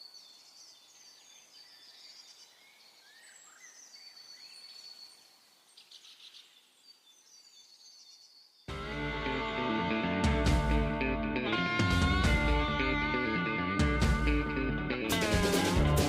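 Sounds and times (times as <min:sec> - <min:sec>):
loud guitar music: 0:08.7 - 0:16.0.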